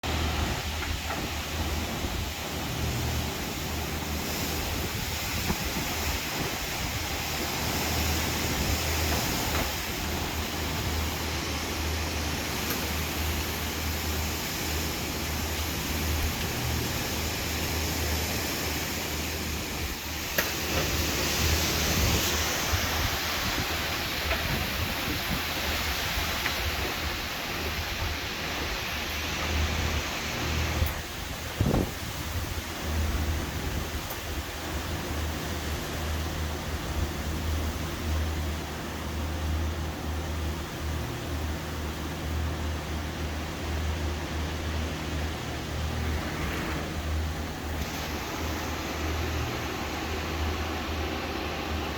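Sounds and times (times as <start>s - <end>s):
strong wind rushing: 31.0s - 34.0s.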